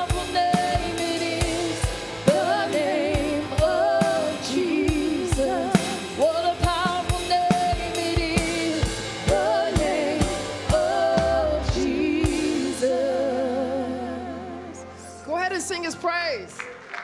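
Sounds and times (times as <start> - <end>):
voices singing: 0.0 - 15.2
worship band playing: 0.0 - 16.8
drum hits: 4.9 - 12.8.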